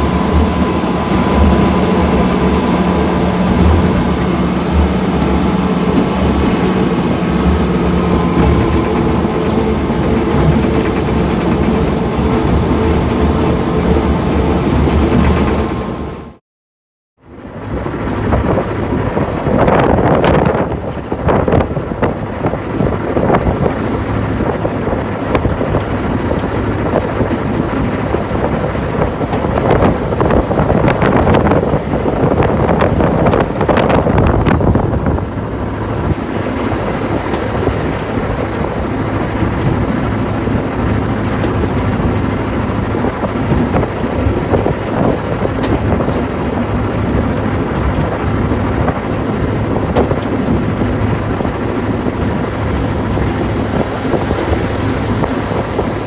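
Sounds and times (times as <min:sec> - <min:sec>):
clattering noise: 0:00.0 - 0:16.3
diesel locomotive engine running: 0:00.0 - 0:16.4, 0:17.2 - 0:56.0.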